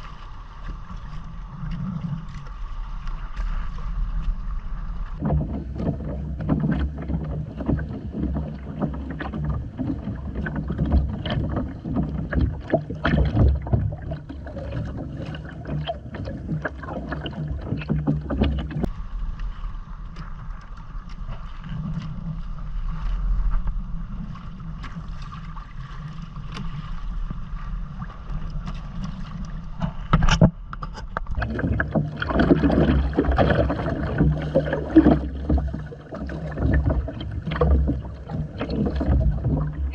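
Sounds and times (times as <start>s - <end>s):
low steady hum: 0.0s - 39.9s
water splashing against kayak hull: 0.0s - 39.9s.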